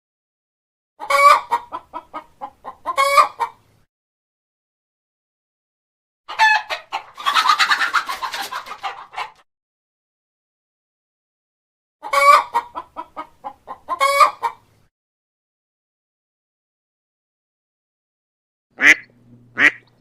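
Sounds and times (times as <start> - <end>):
chicken clucking: 1.0 - 3.6, 6.3 - 9.4, 12.0 - 14.7, 18.8 - 20.0.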